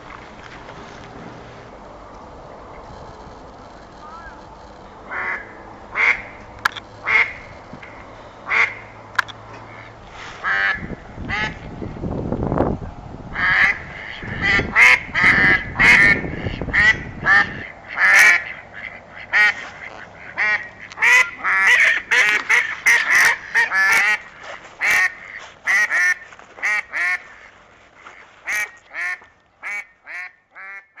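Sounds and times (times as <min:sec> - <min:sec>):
ducks quacking: 0:04.0 - 0:09.0, 0:13.3 - 0:31.0.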